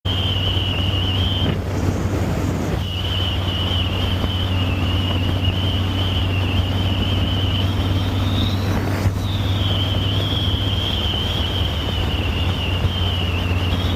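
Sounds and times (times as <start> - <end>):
high wavering whistle: 0.1 - 13.9
wind buffeting microphone: 0.1 - 13.9.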